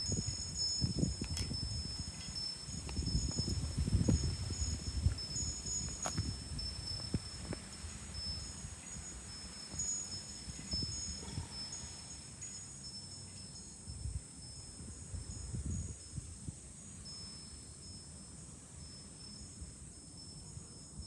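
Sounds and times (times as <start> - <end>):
wind buffeting microphone: 0.0 - 12.2, 13.9 - 16.6
wind chime tinkling: 0.0 - 16.0
cicadas humming: 0.0 - 21.0.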